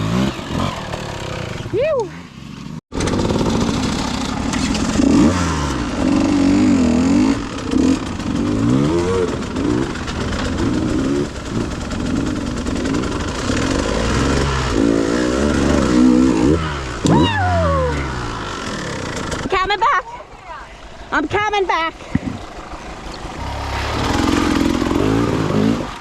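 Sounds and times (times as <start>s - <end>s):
dirt bike engine revving: 0.0s - 1.8s, 3.0s - 17.1s, 22.5s - 26.0s.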